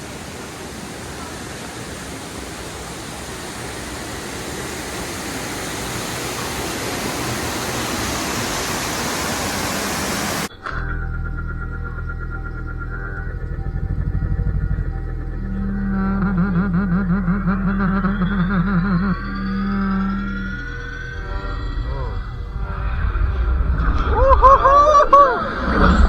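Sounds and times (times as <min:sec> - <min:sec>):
music: 0:10.5 - 0:25.6
low steady hum: 0:10.5 - 0:26.0
steady rushing noise: 0:21.2 - 0:26.0.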